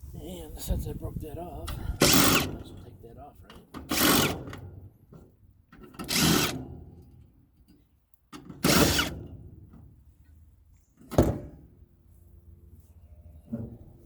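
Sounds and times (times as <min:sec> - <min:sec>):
sharp tool bursts on metal: 0:02.0 - 0:02.6, 0:03.9 - 0:04.4, 0:06.0 - 0:06.7, 0:08.6 - 0:09.2.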